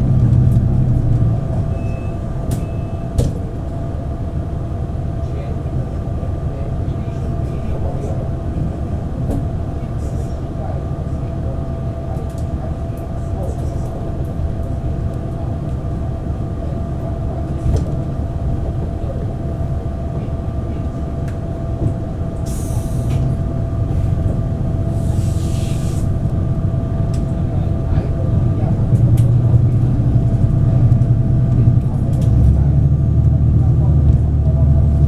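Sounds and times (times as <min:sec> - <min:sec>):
train running gear rumble: 0:00.0 - 0:35.0
short hisses: 0:24.9 - 0:26.1.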